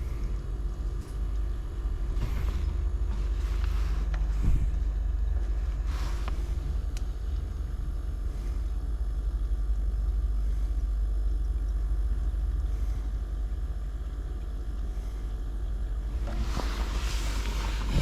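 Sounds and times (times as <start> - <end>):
refrigerator compressor humming: 0.0 - 18.0.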